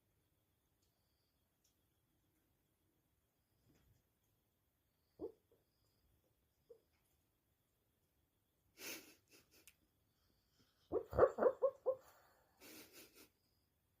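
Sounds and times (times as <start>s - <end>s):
dog yipping: 10.9s - 12.2s.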